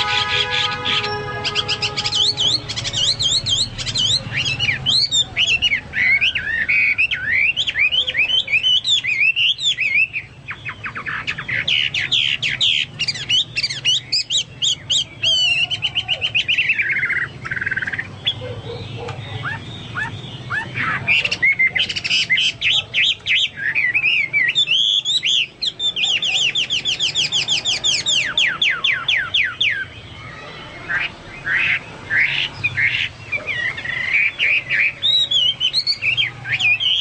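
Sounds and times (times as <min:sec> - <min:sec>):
bird singing trills and whistles: 0:00.0 - 0:37.0
harsh bird call: 0:00.0 - 0:37.0.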